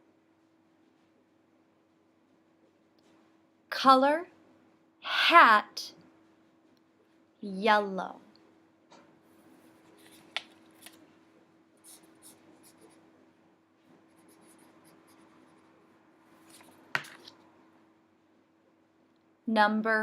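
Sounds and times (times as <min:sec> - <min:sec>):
colouring scratching on paper: 0:11.8 - 0:13.0, 0:13.9 - 0:15.8.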